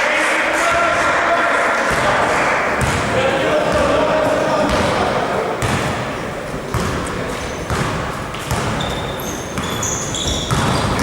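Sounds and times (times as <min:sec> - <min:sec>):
hubbub of hall: 0:00.0 - 0:11.0
basketball bouncing on wooden floor: 0:02.8 - 0:03.0, 0:06.7 - 0:11.0
sneaker squeaks: 0:06.6 - 0:11.0.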